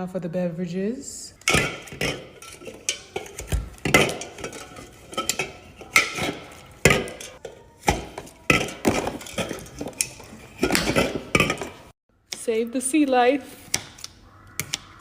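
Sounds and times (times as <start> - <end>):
cans and bottles knocking and clinking: 1.4 - 11.9.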